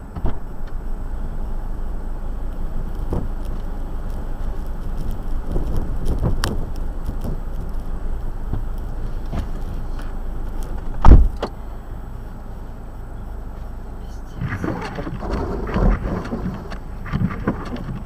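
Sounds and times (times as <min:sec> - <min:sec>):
car engine rumbling: 0:00.0 - 0:18.0
loud thump: 0:10.9 - 0:11.5.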